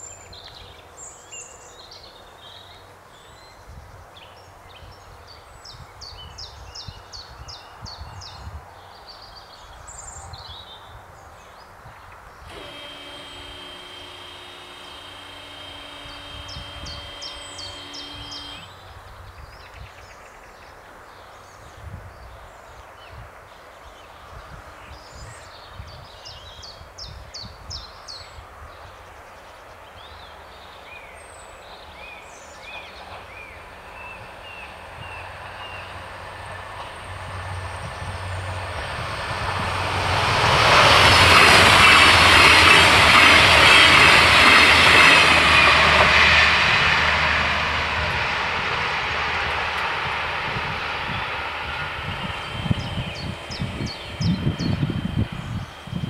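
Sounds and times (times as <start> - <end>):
birds chirping: 12.5 - 19.0, 47.9 - 56.0
diesel railcar passing: 32.7 - 56.0.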